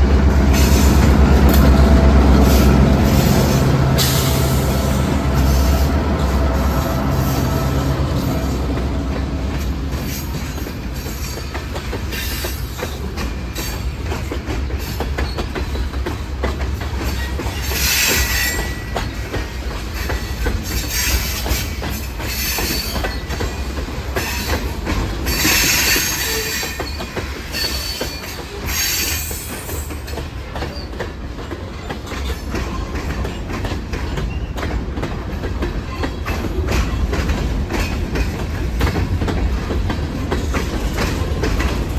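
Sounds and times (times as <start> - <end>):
freight train rumbling: 0.0 - 41.9
wheels clicking over rail joints: 5.2 - 41.9
high wheel squeal: 17.2 - 19.0, 25.3 - 29.9.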